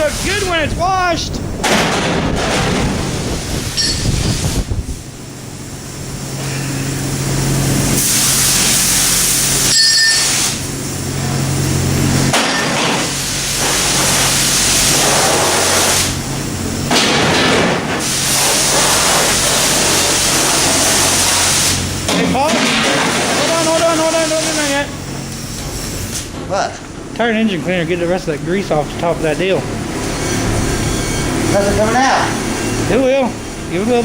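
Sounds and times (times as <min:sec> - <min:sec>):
pressure washer spraying: 0:00.0 - 0:26.4, 0:27.3 - 0:34.0.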